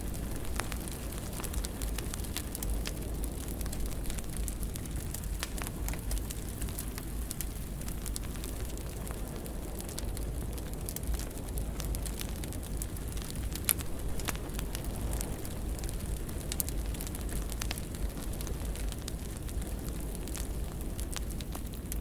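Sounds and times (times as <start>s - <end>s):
fire crackling and popping: 0.0s - 22.0s
low flame rumble: 0.0s - 22.0s.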